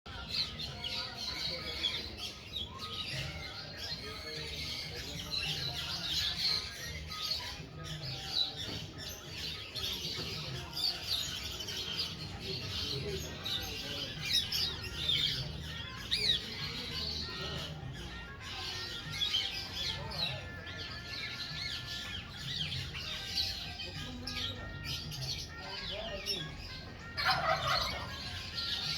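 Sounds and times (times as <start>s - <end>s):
parrot chirping and squawking: 24.8s - 28.9s.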